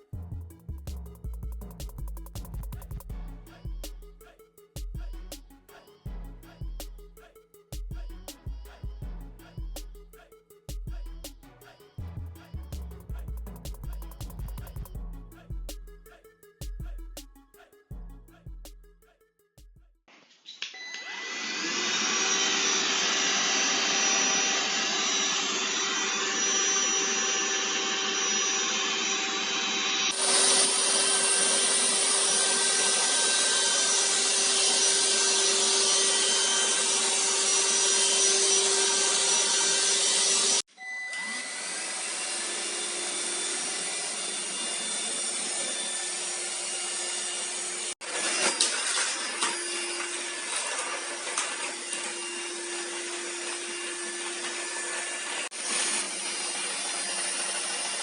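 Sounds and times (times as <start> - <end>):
stick vacuum running: 21.0 - 58.0.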